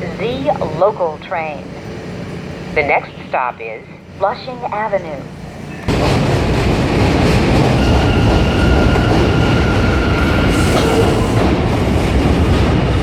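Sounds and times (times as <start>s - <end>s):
train wheels rumbling on track: 4.0s - 13.0s.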